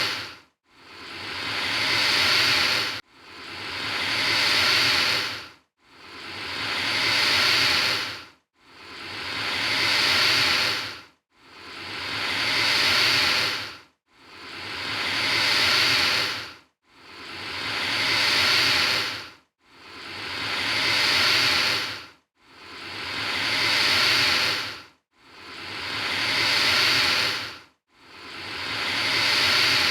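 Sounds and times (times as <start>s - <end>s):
alligator hissing: 0.0s - 0.3s, 0.9s - 3.0s, 3.6s - 5.4s, 6.1s - 8.2s, 8.8s - 11.0s, 11.7s - 13.7s, 14.4s - 16.5s, 17.1s - 19.2s, 19.9s - 22.0s, 22.7s - 24.8s, 25.4s - 27.5s, 28.2s - 29.9s.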